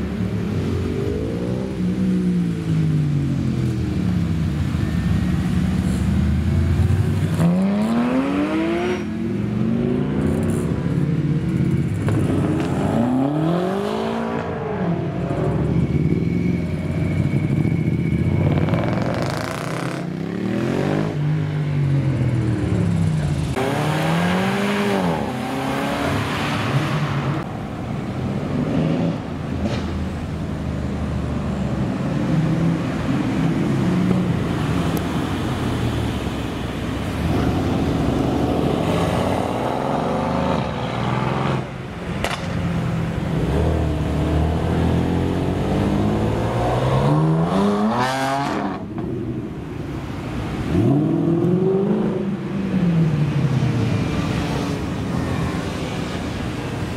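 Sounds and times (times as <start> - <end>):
engine and road rumble: 0.0 - 56.9
cars accelerating hard: 7.2 - 10.1, 23.4 - 27.5, 43.4 - 49.1.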